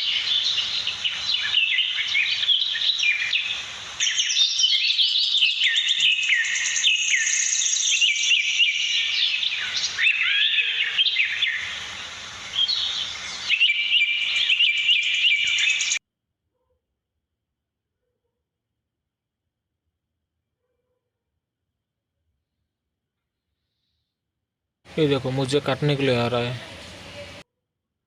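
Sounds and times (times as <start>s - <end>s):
budgerigars chattering and warbling: 0.0s - 16.0s.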